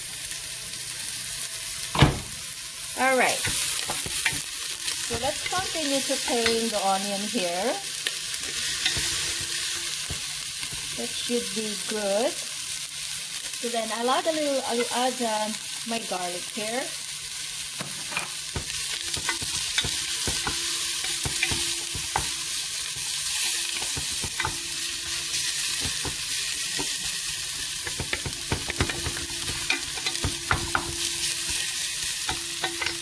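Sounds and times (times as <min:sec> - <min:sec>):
onion sizzling in oil: 0:00.0 - 0:33.0
utensil scraping a pot: 0:08.1 - 0:11.1, 0:17.9 - 0:33.0.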